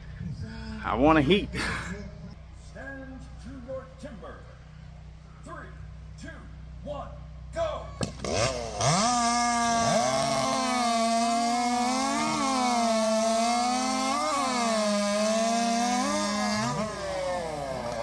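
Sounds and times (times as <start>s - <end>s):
chainsaws revving: 8.0s - 18.0s.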